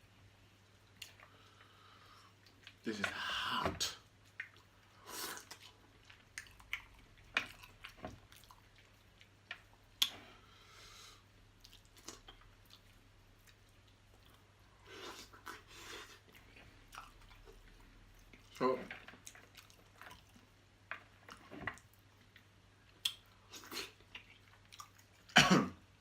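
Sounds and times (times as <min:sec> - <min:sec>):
person chewing food: 0:00.6 - 0:25.4
wet mouth clicks and smacks: 0:23.0 - 0:23.3.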